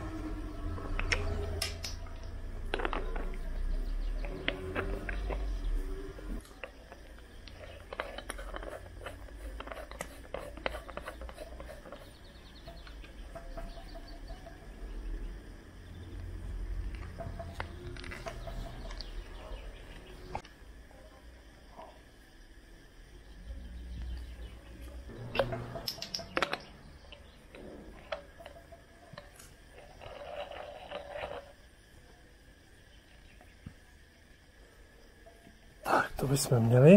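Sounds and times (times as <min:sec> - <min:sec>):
scraping or rustling: 0:04.3 - 0:12.8, 0:29.2 - 0:31.6.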